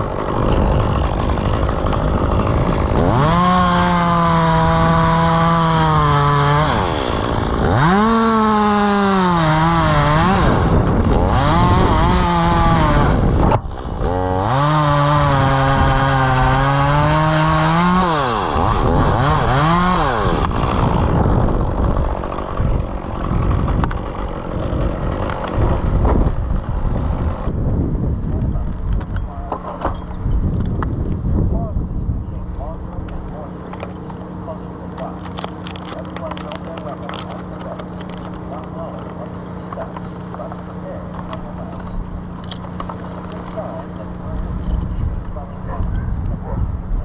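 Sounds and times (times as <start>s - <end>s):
wind noise: 0.0s - 3.9s, 9.8s - 14.1s, 18.0s - 33.3s, 44.1s - 47.0s
chainsaw cutting wood: 0.0s - 31.2s, 32.9s - 46.6s.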